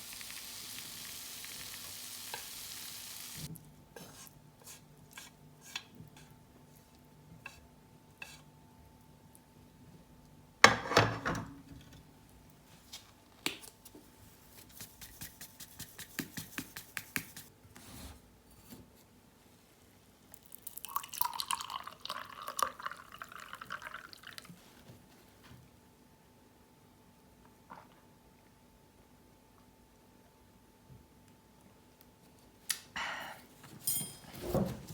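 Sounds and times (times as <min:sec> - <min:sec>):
liquid being poured: 0:20.4 - 0:24.5.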